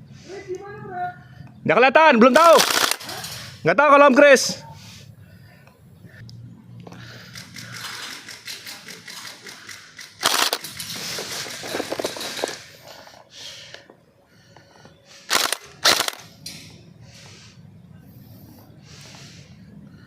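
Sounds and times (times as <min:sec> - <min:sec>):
airsoft guns firing rapid bursts: 0:02.4 - 0:03.2, 0:07.4 - 0:11.8, 0:15.3 - 0:16.2.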